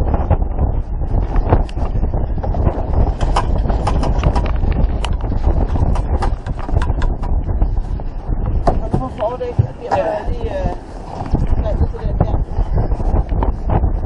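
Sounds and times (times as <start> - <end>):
wind rumbling on microphone: 0.0 - 14.0
knocks and clicks from boat: 2.5 - 7.4, 8.6 - 10.1.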